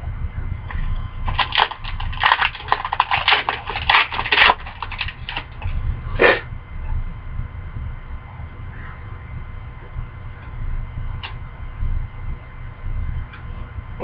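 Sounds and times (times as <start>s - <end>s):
low steady hum: 0.0s - 14.0s
cards and wrapper crinkling: 1.2s - 5.7s.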